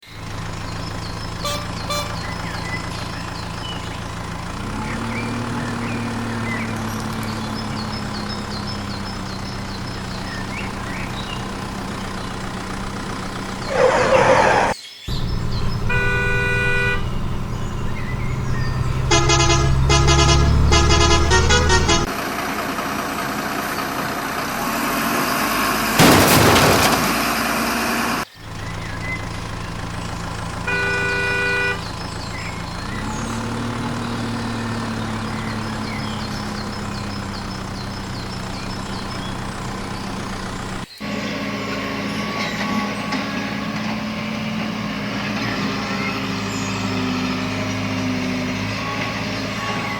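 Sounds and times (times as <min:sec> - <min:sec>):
heavy truck engine running: 0:00.0 - 0:49.9
truck horn honking: 0:01.3 - 0:03.2, 0:04.2 - 0:22.2, 0:30.4 - 0:32.5, 0:45.2 - 0:49.9.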